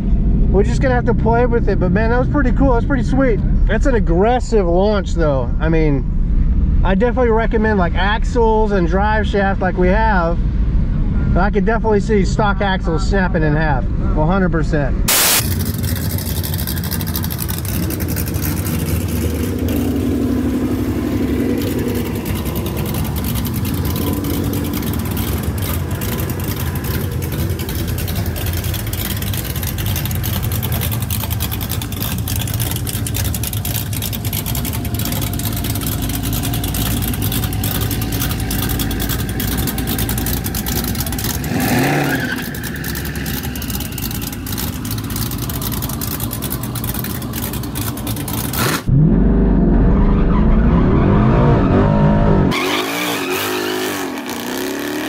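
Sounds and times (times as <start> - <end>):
car engine idling: 15.0 - 48.9
engine revving: 15.1 - 55.0.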